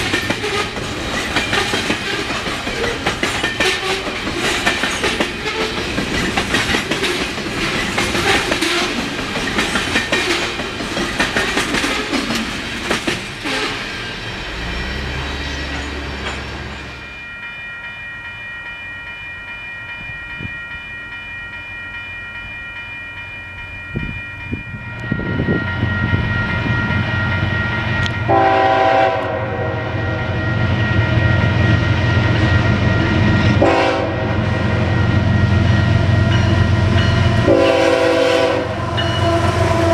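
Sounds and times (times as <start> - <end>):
train wheels clickety-clack: 0.0 - 16.9
diesel locomotive rumble: 0.0 - 17.2
train horn blasts: 13.4 - 14.0, 28.3 - 30.4, 33.6 - 34.9, 37.4 - 39.9.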